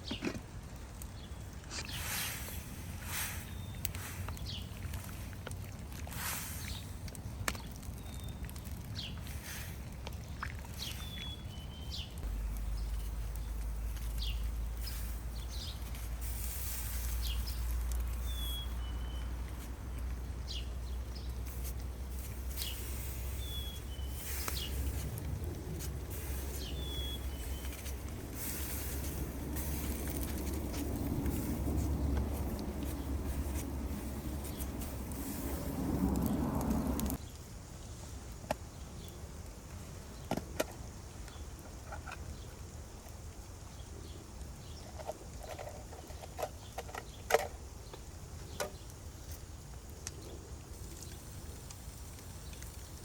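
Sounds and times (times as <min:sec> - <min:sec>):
small birds chirping: 0:00.0 - 0:38.0
steady low rumble: 0:01.2 - 0:37.2.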